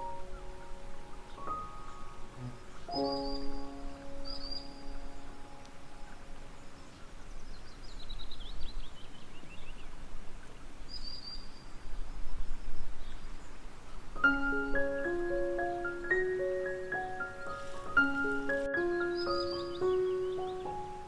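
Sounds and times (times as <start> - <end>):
outdoor background hiss: 0.0 - 21.0
small birds chirping: 0.0 - 21.0
glockenspiel-like mallet melody: 14.2 - 21.0.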